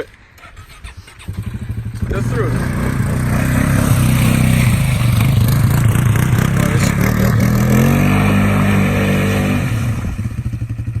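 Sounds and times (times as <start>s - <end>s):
off-road engine running hard: 0.5s - 11.0s.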